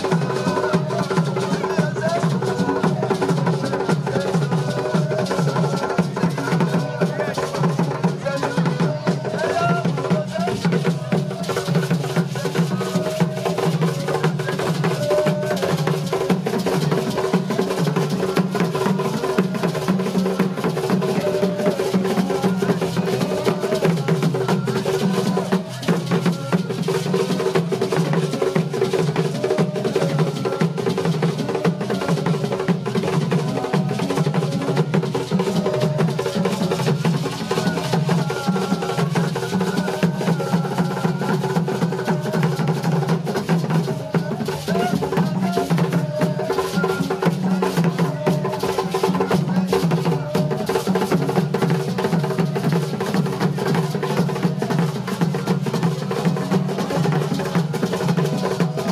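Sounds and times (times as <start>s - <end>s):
drum and percussion music: 0.0s - 58.9s.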